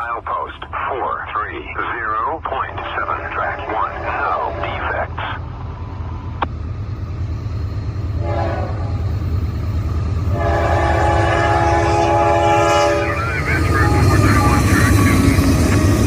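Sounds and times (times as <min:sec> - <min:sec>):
train rumbling: 0:00.0 - 0:16.0
locomotive air horn blasts: 0:08.2 - 0:09.0, 0:10.3 - 0:13.2.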